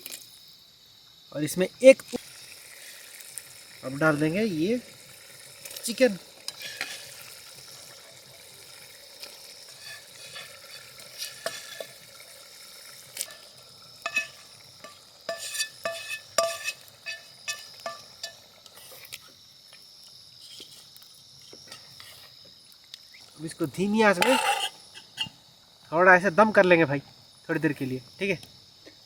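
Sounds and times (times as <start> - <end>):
food sizzling in a pan: 0.0 - 25.8
spoon clinking against metal pan: 14.0 - 18.4.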